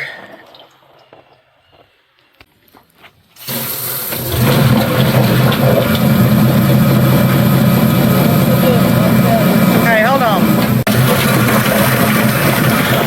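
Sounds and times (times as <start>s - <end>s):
chicken plucker motor humming: 3.4s - 13.0s
water rushing and splashing: 3.4s - 13.0s.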